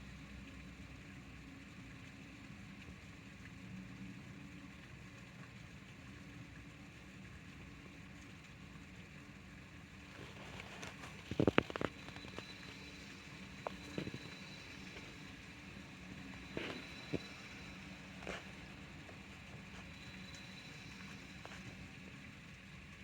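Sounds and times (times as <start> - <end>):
low steady hum: 0.0 - 23.0
steady rain falling: 5.3 - 23.0.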